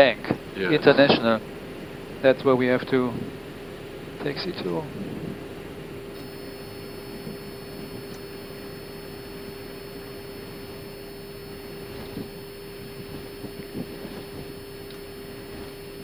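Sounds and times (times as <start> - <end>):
aircraft cockpit hiss and hum: 0.0 - 16.0.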